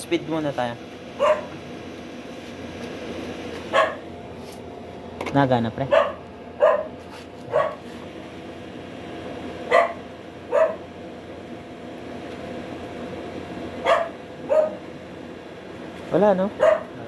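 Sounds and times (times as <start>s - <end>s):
electric cooling fan whirring: 0.0s - 17.0s
dog barking: 1.2s - 1.6s, 3.7s - 4.0s, 5.9s - 7.8s, 9.7s - 10.8s, 13.8s - 14.8s, 16.6s - 17.0s.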